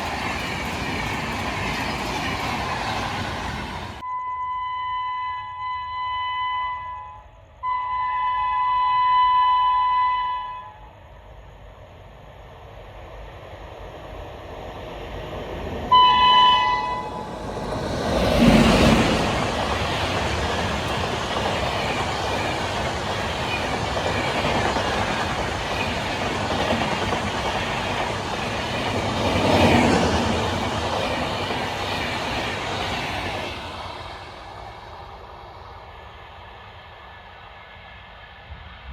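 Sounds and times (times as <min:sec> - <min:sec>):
train passing: 0:00.0 - 0:04.1, 0:06.2 - 0:38.9
train horn blast: 0:04.0 - 0:11.0, 0:15.9 - 0:17.3.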